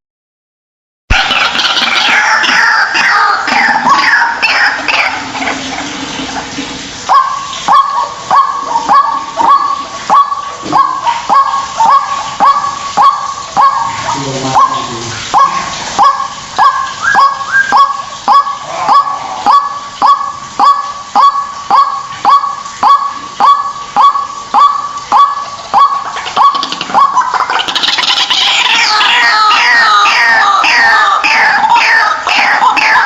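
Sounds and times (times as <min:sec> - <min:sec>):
bird honking calls: 0:07.1 - 0:33.0.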